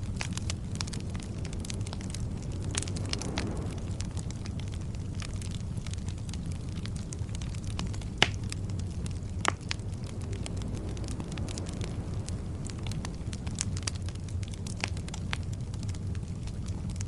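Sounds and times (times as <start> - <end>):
fire crackling: 0.0 - 17.0
fire rumbling: 0.0 - 17.0
loud wood pops: 8.2 - 8.4.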